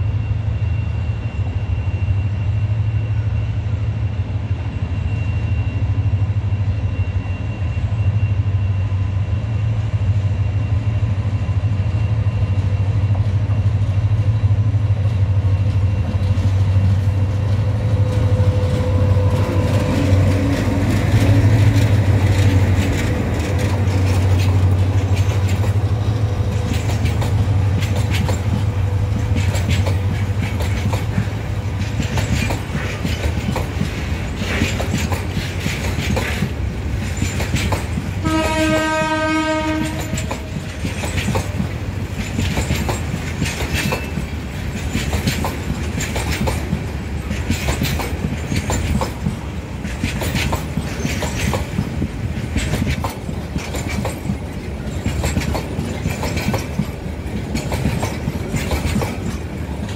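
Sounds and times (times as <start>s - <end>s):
train rumbling: 0.0s - 59.9s
wheels clattering over rails: 16.2s - 59.9s
train horn blast: 38.2s - 40.6s.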